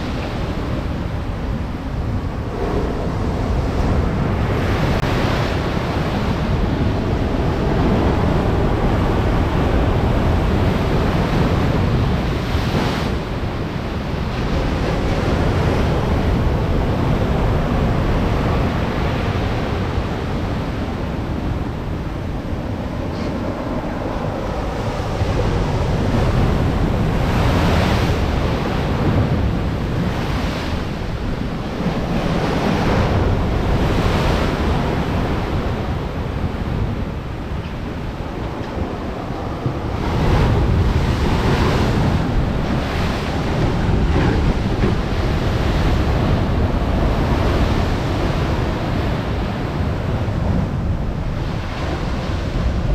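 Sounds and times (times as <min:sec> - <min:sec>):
storm waves breaking on shore: 0:00.0 - 0:52.9
wind buffeting microphone: 0:00.0 - 0:52.9.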